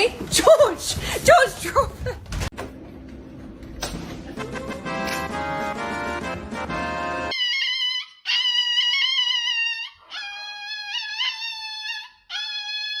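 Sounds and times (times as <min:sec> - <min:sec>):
music: 0:02.5 - 0:07.3.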